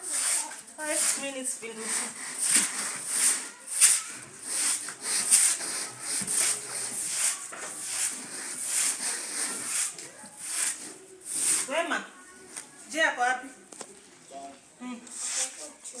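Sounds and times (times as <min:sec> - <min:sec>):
wet carpet scrubbed by hand: 0:01.8 - 0:11.7.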